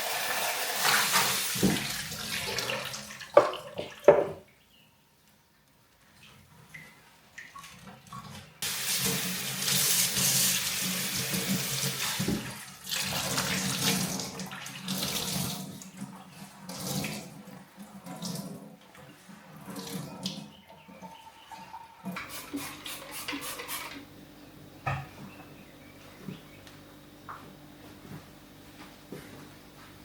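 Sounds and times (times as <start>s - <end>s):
tap water running into sink: 0.0s - 4.4s, 8.3s - 18.7s.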